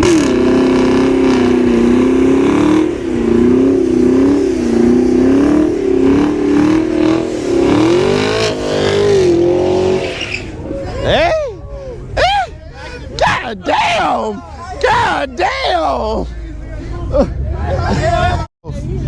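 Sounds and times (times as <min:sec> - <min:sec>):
car engine revving hard: 0:00.0 - 0:10.6.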